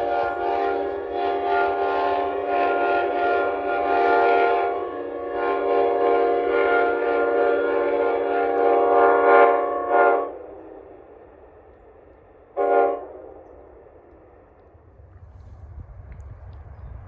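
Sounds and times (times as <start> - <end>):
locomotive air horn chord: 0.0 - 10.5, 12.6 - 13.4.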